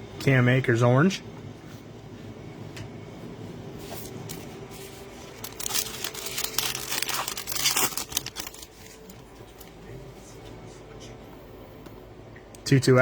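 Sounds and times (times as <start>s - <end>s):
plastic foil wrapper crinkling: 5.0s - 9.7s.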